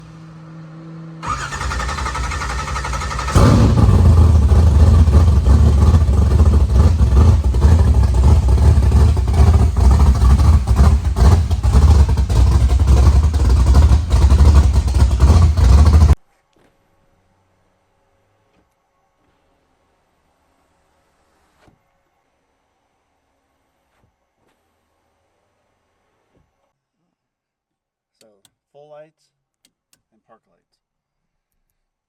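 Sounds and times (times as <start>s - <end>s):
engine starter cranking: 1.2s - 6.6s
car engine idling loudly: 1.2s - 16.2s.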